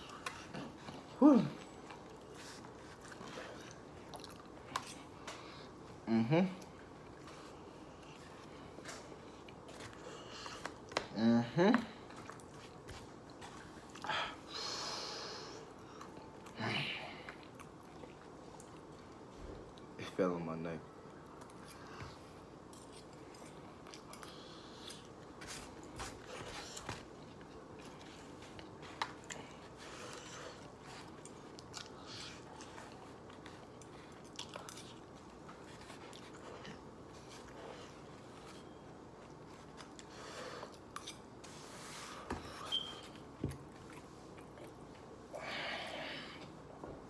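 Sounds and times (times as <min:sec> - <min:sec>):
person chewing: 0:00.0 - 0:05.8, 0:17.2 - 0:20.0, 0:21.2 - 0:41.4.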